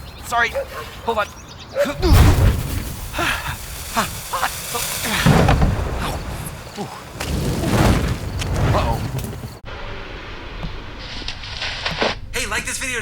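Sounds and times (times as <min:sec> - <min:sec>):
deep booms: 0:02.0 - 0:09.6.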